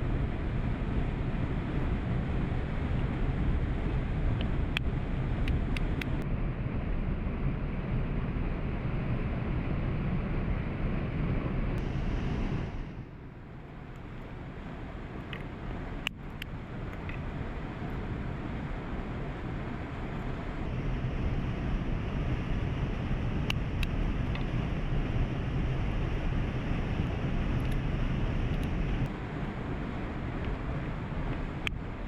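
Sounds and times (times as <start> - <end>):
faint sharp clicks: 4.4 - 6.2, 28.5 - 28.8.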